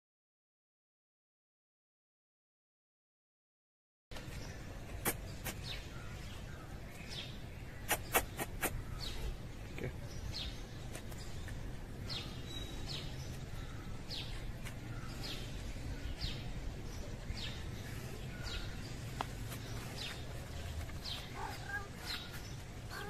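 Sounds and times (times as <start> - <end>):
small bird chirping: 4.2 - 23.0.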